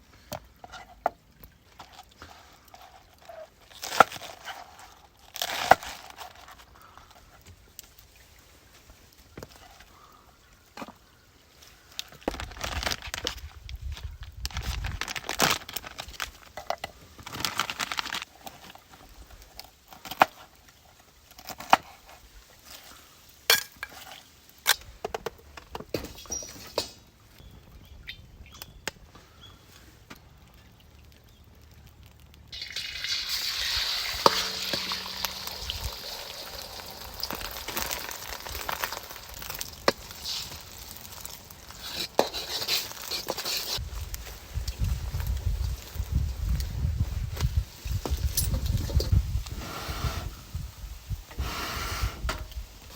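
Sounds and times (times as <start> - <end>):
food sizzling in hot pan: 32.6 - 43.7
metal cookware clinking: 33.7 - 37.4.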